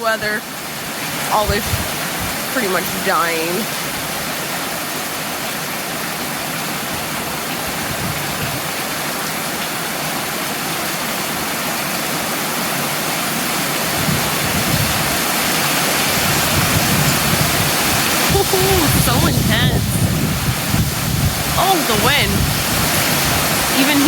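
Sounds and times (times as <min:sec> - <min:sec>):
heavy rain pouring: 0:00.0 - 0:24.0
low thunder rumble: 0:13.9 - 0:15.3, 0:16.0 - 0:24.0.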